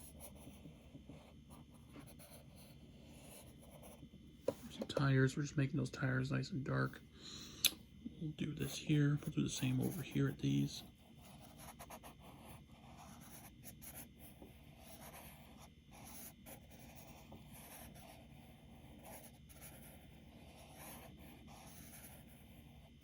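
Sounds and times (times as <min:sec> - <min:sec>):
charcoal scratching on paper: 0:00.0 - 0:00.7, 0:11.2 - 0:23.0.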